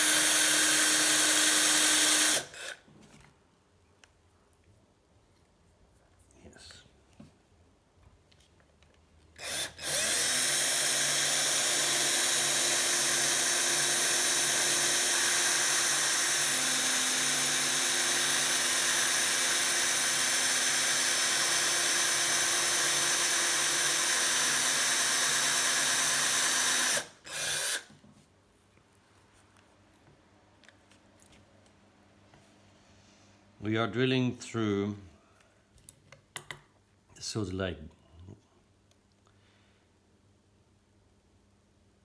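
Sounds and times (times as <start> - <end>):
electric drill boring metal: 0.0 - 2.8, 9.4 - 27.9.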